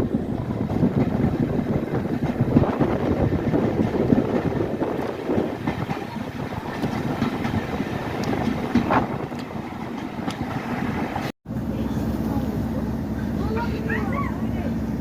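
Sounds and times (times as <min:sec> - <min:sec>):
train rumbling: 0:00.0 - 0:15.0
train wheels clicking: 0:00.7 - 0:11.3.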